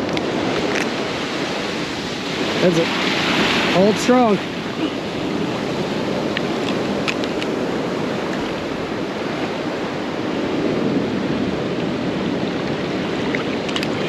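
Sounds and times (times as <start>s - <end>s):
ocean surf on a beach: 0.0s - 14.0s.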